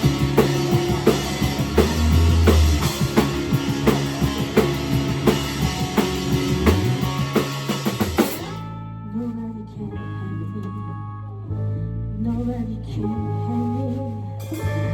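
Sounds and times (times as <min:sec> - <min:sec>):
drum kit steady beat: 0:00.0 - 0:08.7
rock band playing live: 0:00.0 - 0:08.8.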